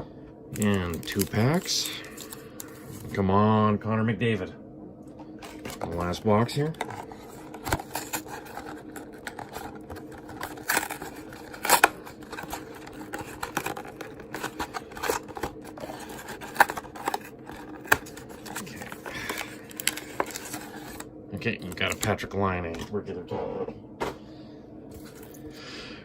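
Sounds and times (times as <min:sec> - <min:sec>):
faint steady hum: 0:00.0 - 0:26.0
cardboard crackling and tearing: 0:00.6 - 0:02.3, 0:05.6 - 0:21.0.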